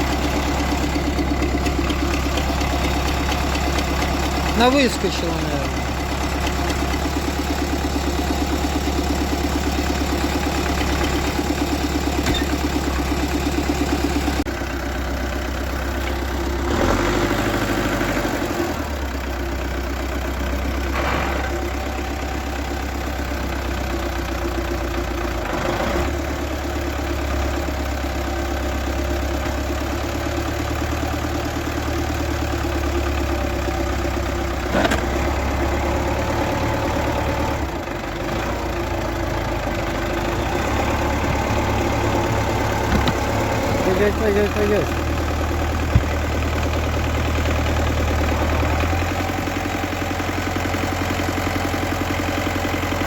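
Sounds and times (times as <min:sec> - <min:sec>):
vehicle engine running: 0:00.0 - 0:53.0
short knocks and clunks: 0:42.8 - 0:43.7, 0:45.8 - 0:46.6.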